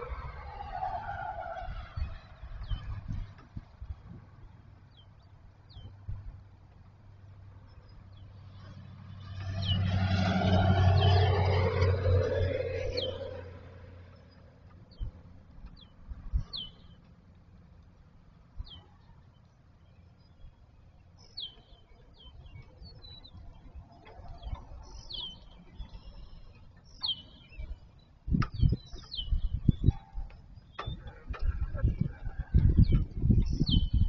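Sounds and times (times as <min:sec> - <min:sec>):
car passing: 0:00.0 - 0:03.8, 0:07.0 - 0:15.5
bird chirping: 0:10.9 - 0:17.6, 0:18.6 - 0:34.0.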